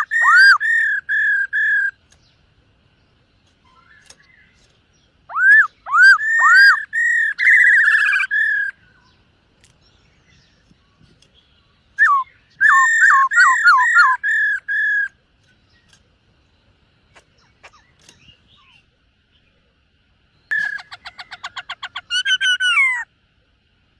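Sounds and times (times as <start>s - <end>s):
bird singing whistled notes: 0.0s - 2.4s, 3.0s - 16.0s.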